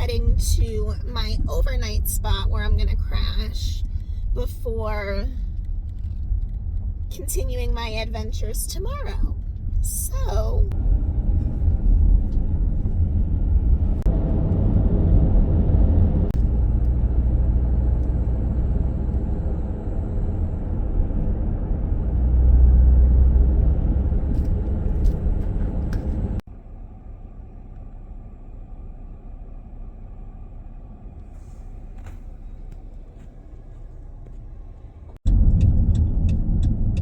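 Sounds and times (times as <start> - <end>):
quiet steady hum: 0.0 - 14.0
van road rumble: 0.0 - 37.0.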